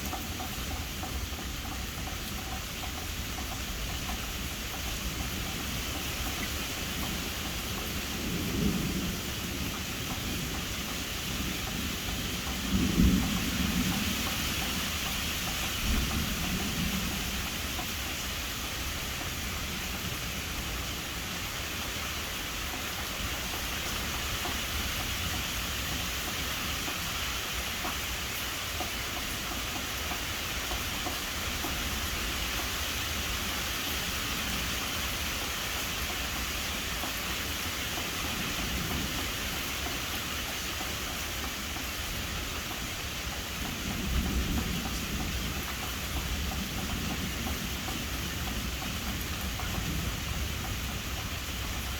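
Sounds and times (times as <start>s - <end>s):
steady rain hiss: 0.0s - 51.9s
distant thunder rumble: 5.2s - 19.0s, 43.6s - 51.9s.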